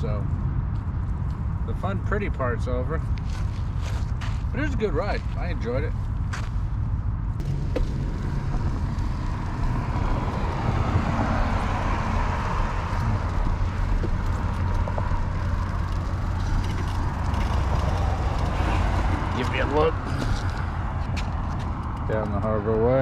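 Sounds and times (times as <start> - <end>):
passing road traffic: 0.0 - 23.0
wind rumbling over microphone: 6.1 - 22.8.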